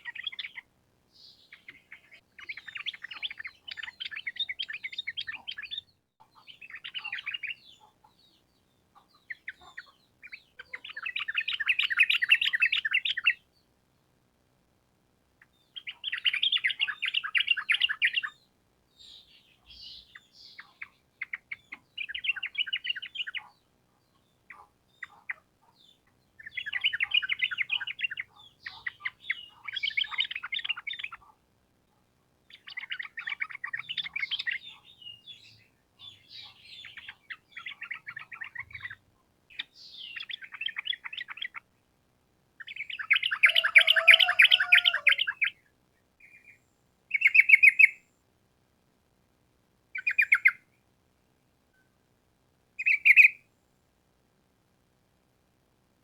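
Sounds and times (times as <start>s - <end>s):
bulbul singing bubbling song: 0.0s - 8.4s, 15.5s - 23.6s, 24.2s - 31.4s, 32.5s - 41.7s, 42.6s - 45.6s, 47.1s - 48.0s, 52.8s - 53.4s.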